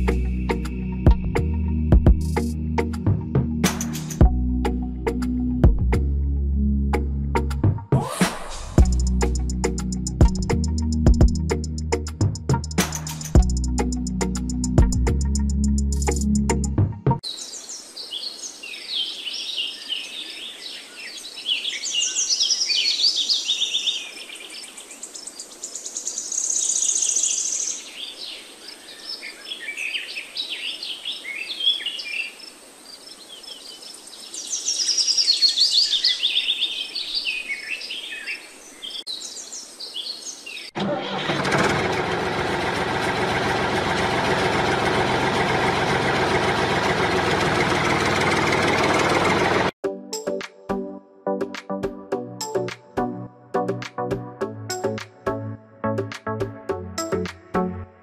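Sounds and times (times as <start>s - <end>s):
birds chirping and singing: 17.2s - 40.8s
small gasoline engine running: 40.8s - 49.8s.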